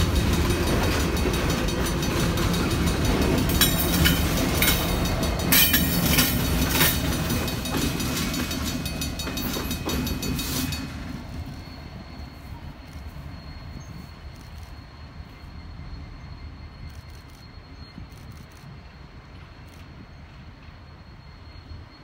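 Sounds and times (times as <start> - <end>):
wheels clacking over rail joints: 0.0 - 11.7
train wheels rumbling: 0.0 - 22.0.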